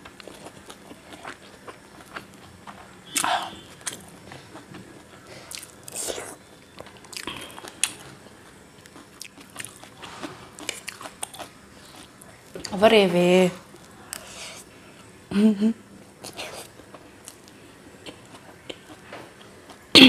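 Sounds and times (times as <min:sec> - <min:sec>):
chewing noodles: 0:07.0 - 0:12.4.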